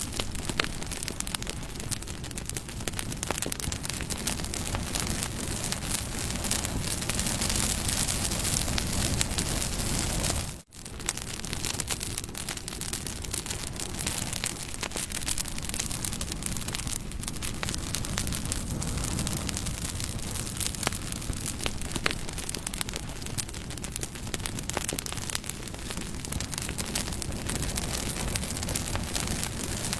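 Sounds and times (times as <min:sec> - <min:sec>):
fire hissing: 0:00.0 - 0:29.9
wood fire crackling and popping: 0:00.0 - 0:29.9.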